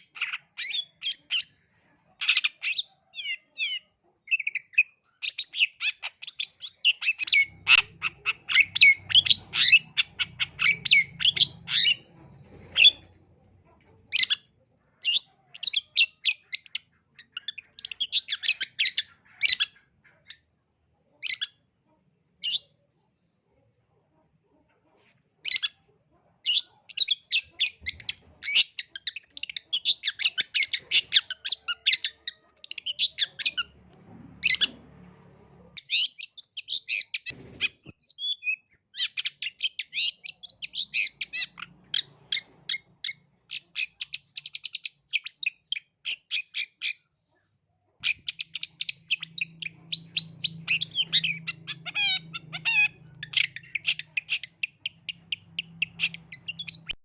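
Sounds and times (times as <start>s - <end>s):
shrike singing chattering song: 48.0s - 57.0s.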